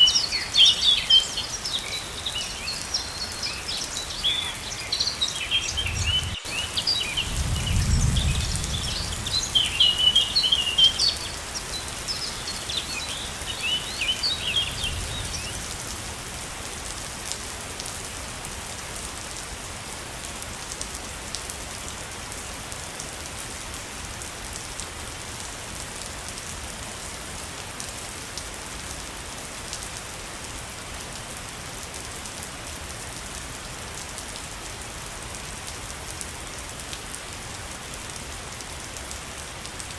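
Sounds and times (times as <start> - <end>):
waterfall rushing: 0.0 - 15.5
birds chirping: 0.0 - 15.9.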